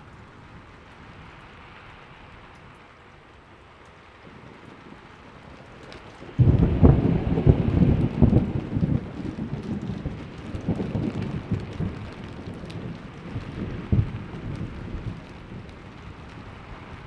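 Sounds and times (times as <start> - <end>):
steady rain: 0.0 - 17.0
thunder rumbling: 4.2 - 17.0
sharp thunder clap: 6.4 - 15.2.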